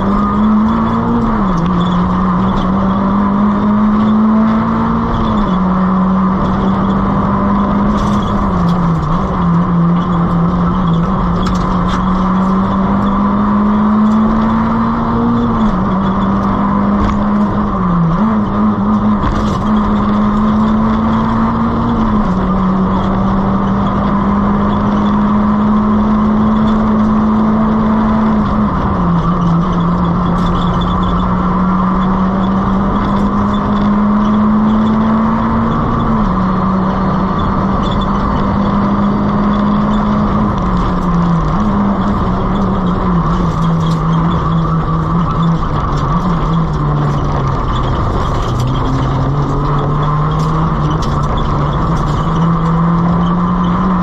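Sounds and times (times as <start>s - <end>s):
car engine revving high: 0.0s - 54.0s
road noise: 0.0s - 54.0s.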